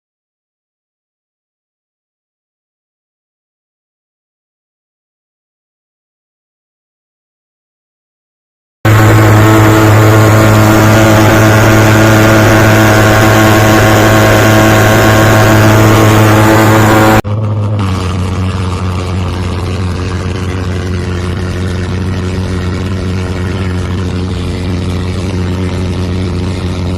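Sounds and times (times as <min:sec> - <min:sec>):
pulse jet engine buzzing drone: 0:08.9 - 0:26.9.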